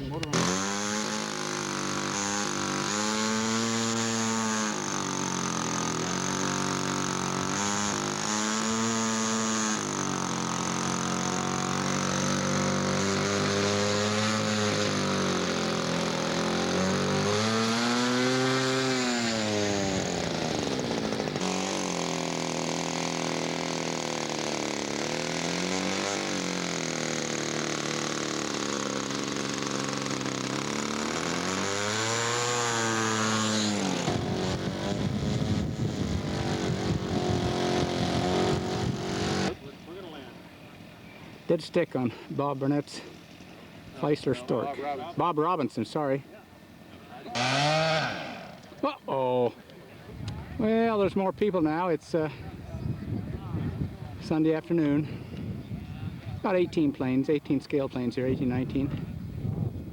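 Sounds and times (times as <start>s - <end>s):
model airplane engine: 0.0s - 41.5s, 46.6s - 49.3s.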